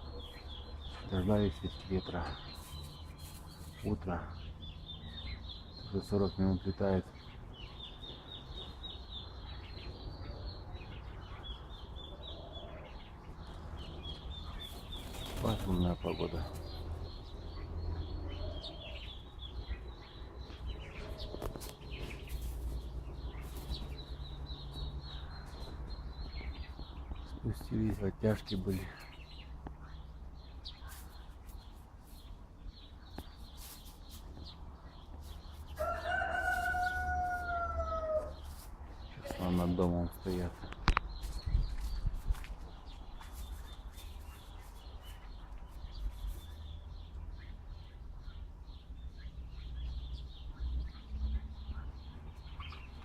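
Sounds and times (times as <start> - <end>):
small songbird chirping: 0.0 - 53.0
rooster crowing: 35.8 - 38.4
wind rumbling on microphone: 40.7 - 43.3.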